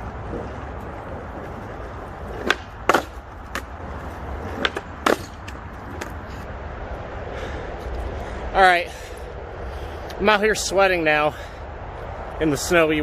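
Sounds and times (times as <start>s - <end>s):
skateboard clacking on pavement: 0.2s - 6.4s.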